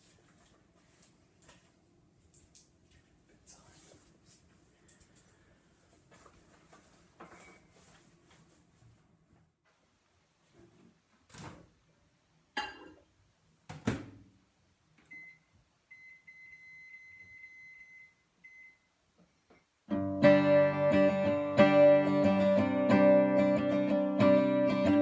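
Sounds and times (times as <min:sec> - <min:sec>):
strummed acoustic guitar: 0:19.9 - 0:25.0.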